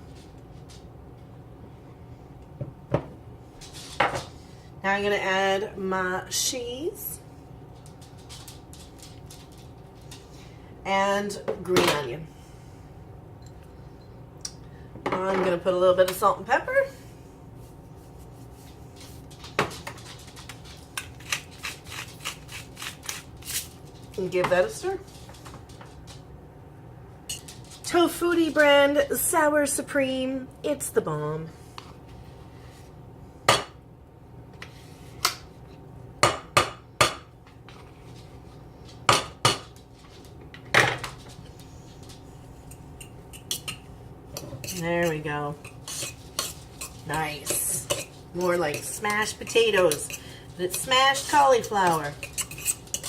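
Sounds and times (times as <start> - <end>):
low steady hum: 0.0 - 53.0.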